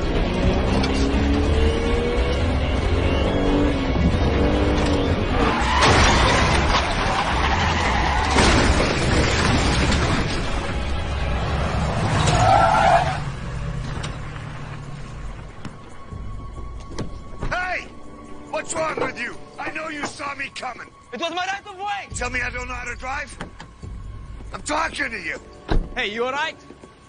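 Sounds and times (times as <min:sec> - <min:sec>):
car engines: 0:00.0 - 0:27.0
tense dramatic score: 0:00.0 - 0:27.0
tyres skidding: 0:00.0 - 0:27.0
tyre squeal: 0:12.1 - 0:13.3.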